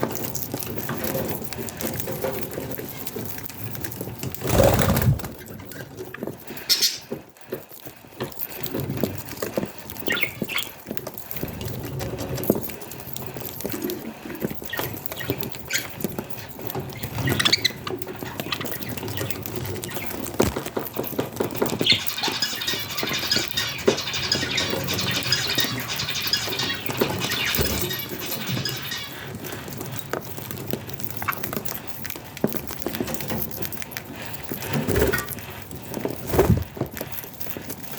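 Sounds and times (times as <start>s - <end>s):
small clicks and pecks: 0.0s - 37.9s
budgies chirping: 6.7s - 7.1s, 21.8s - 29.3s.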